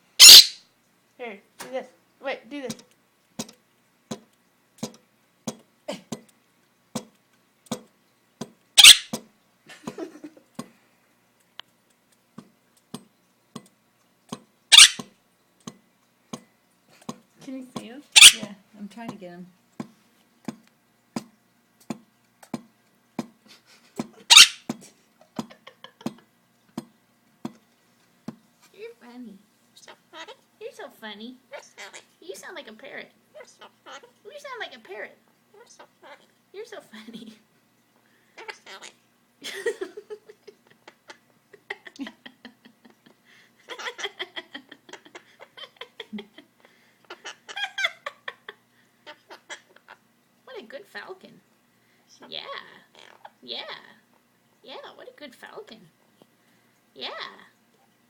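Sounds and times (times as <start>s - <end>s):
harsh hiss-like bird call: 0.2s - 0.6s
pet bird chattering: 0.2s - 0.6s, 8.8s - 9.1s, 14.7s - 15.0s, 18.1s - 18.5s, 24.3s - 24.7s.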